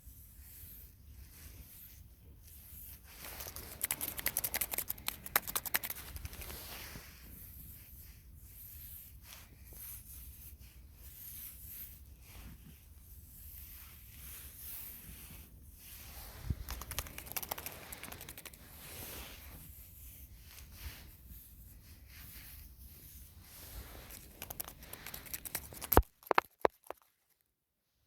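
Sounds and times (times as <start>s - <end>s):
hands rustling gardening materials: 2.8s - 7.5s, 14.7s - 27.4s
small sharp clicks: 3.4s - 6.5s, 16.7s - 18.6s, 24.1s - 27.1s.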